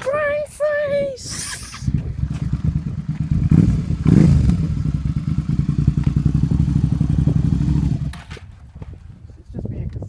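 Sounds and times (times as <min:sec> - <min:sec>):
motorcycle engine running: 0:01.8 - 0:09.1.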